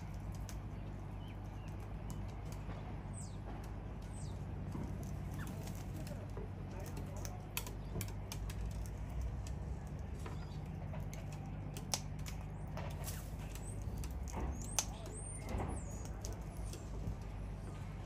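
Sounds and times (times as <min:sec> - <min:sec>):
steady low hum: 0:00.0 - 0:18.0
sharp clicks and ticks: 0:05.9 - 0:17.4.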